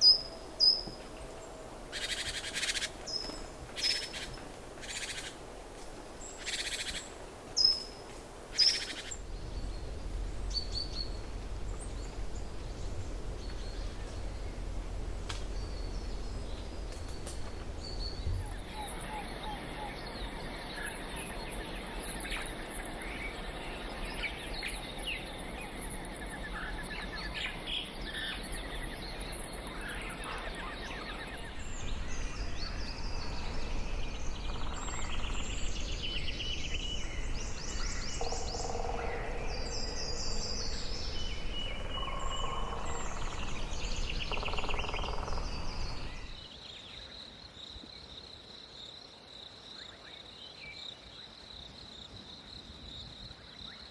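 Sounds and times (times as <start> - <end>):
birds chirping: 8.6 - 46.5.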